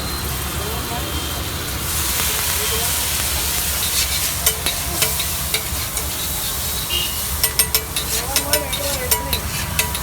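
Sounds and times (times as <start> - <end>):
eggs sizzling in oil: 0.1 - 10.0
utensil clicking on hot plate: 2.1 - 6.6, 7.4 - 10.0
faint voices: 8.0 - 10.0.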